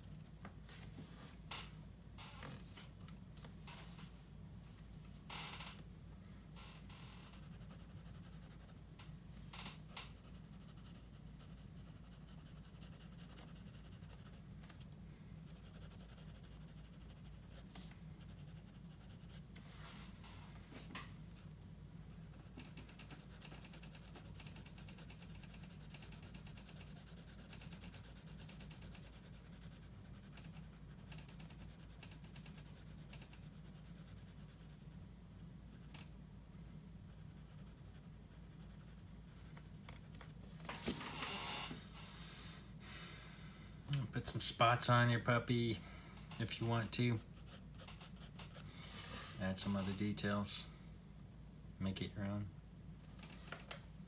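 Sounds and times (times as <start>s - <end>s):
pencil scratching on paper: 0.0s - 0.3s, 7.2s - 8.9s, 9.9s - 14.4s, 15.4s - 19.5s, 22.0s - 36.1s, 37.0s - 41.0s, 46.7s - 48.7s
low steady hum: 0.0s - 54.0s.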